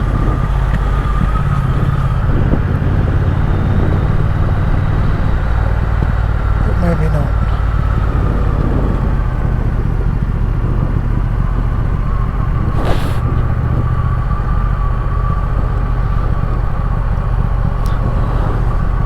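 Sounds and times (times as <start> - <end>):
motorcycle engine running: 0.0 - 19.0
brief hiss: 12.8 - 13.4.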